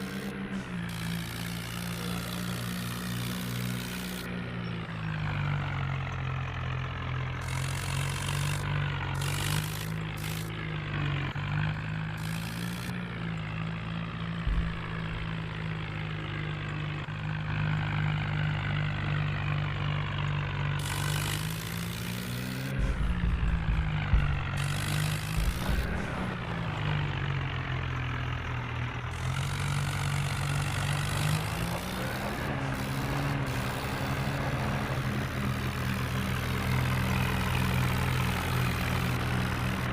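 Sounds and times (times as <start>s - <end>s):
tractor engine revving: 0.0s - 39.9s
low thuds: 14.4s - 15.5s, 22.8s - 26.8s.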